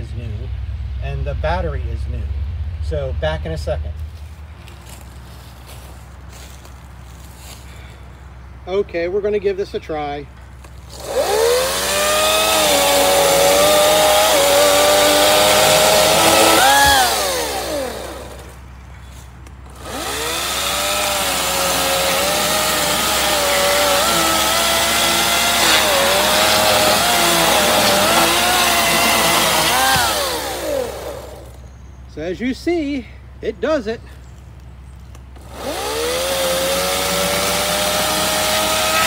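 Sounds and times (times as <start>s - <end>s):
chainsaw whining cutting wood: 10.9s - 18.6s, 19.7s - 31.6s, 35.4s - 39.0s.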